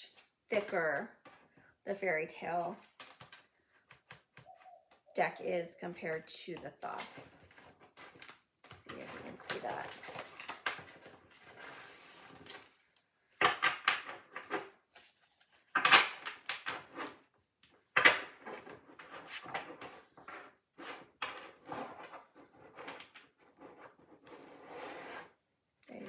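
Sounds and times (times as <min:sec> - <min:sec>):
cards rustling tapping and clacking: 0:02.7 - 0:04.8, 0:06.0 - 0:11.8, 0:12.4 - 0:24.0.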